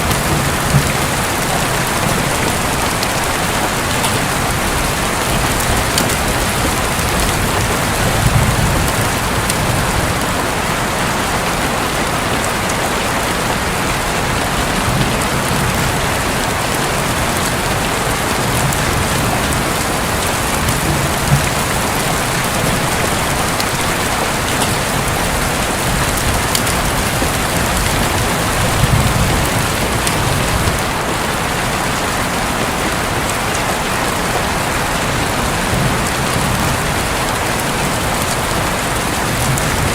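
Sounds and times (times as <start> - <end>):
thunder rumbles: 0.0 - 11.6, 13.8 - 32.1
heavy rain drumming on a roof: 0.0 - 39.9.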